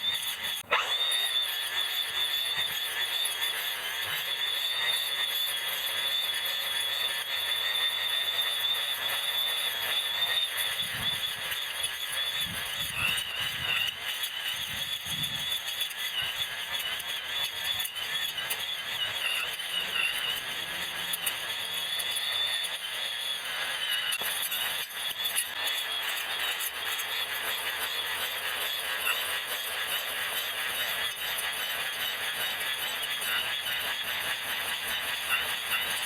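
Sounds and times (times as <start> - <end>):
sped-up grass trimmer squeal: 0.0 - 36.0.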